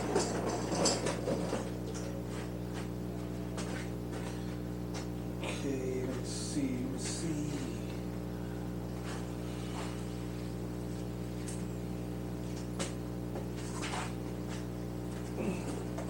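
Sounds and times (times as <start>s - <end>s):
objects knocking and clattering: 0.0s - 2.1s
electrical mains hum: 0.0s - 16.0s.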